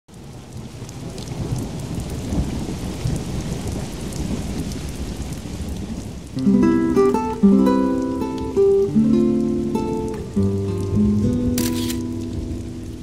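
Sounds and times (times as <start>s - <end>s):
rain falling: 0.1s - 13.0s
low rolling thunder: 0.3s - 6.4s.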